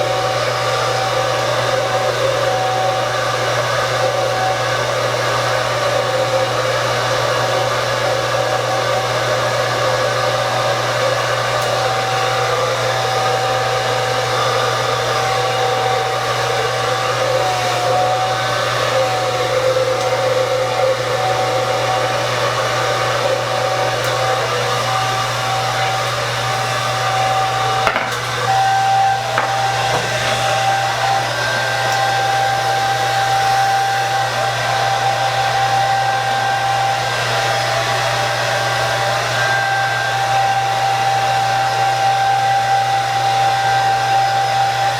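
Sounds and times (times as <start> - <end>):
hair dryer running: 0.0 - 44.9
hair dryer click: 27.8 - 30.8.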